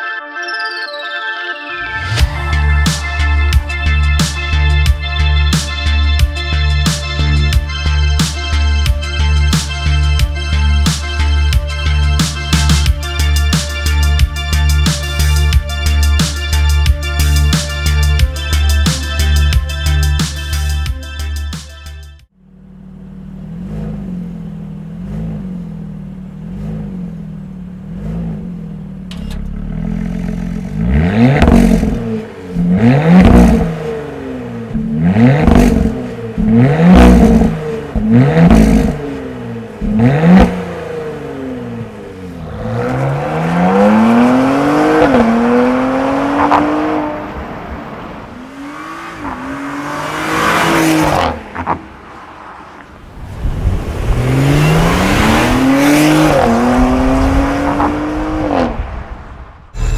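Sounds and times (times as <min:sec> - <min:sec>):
car engine idling and revving: 0:01.8 - 0:59.9
car accelerating through gears: 0:22.7 - 0:59.9.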